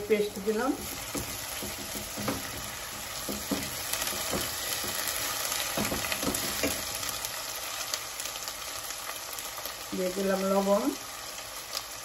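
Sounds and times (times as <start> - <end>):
onions sizzling in oil: 0.0 - 12.0
spatula scraping and knocking pan: 0.4 - 7.2.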